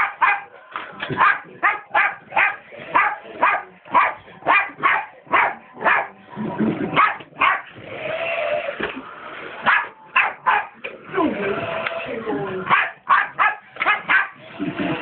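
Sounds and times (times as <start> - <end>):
dog barking: 0.0 - 0.5, 1.2 - 6.1, 7.0 - 7.7, 9.6 - 10.8, 12.7 - 14.4.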